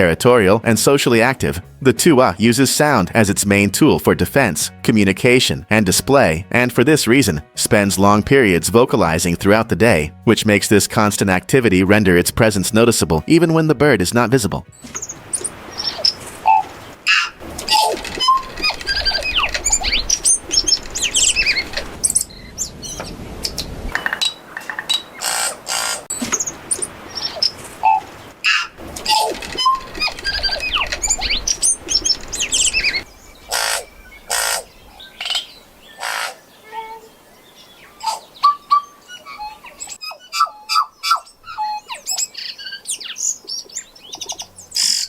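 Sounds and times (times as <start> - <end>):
bird singing clicks and whistles: 14.8 - 35.4.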